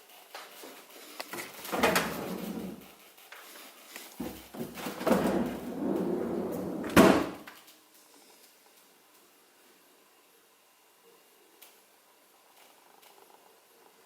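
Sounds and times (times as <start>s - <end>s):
refrigerator door slamming: 6.8s - 7.4s.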